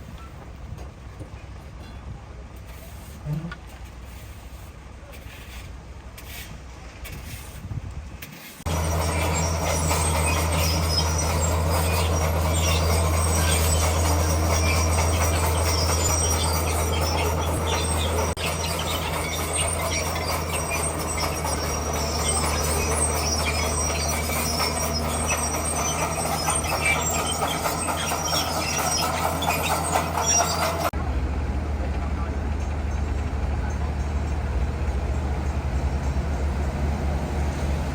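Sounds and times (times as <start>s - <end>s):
steel tracks clanking and rattling: 8.2s - 37.9s
bulldozer diesel engine running: 8.6s - 37.9s.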